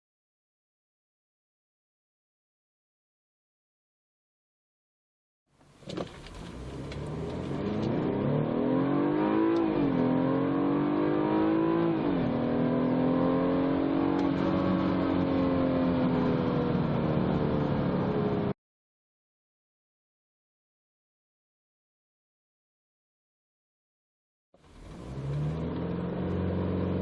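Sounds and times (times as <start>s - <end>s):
car engine accelerating hard: 5.9s - 18.5s, 24.6s - 27.0s.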